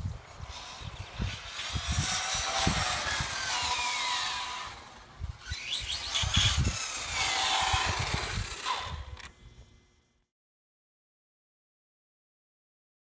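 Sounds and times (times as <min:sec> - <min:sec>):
toy car electric motor whining: 0:00.1 - 0:09.4.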